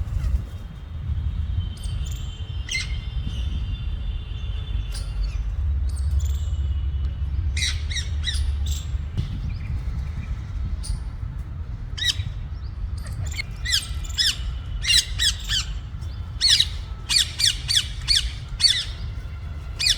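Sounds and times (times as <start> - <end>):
steady low rumble: 0.0 - 19.9
parakeets squawking: 13.0 - 19.9.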